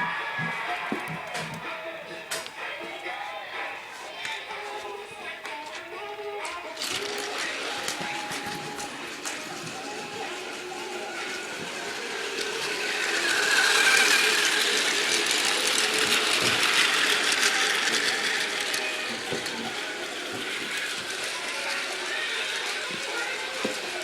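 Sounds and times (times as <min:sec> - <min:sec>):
small clicks of train on track: 0:06.4 - 0:10.6, 0:11.2 - 0:24.0
model train motor whirring: 0:06.8 - 0:24.0.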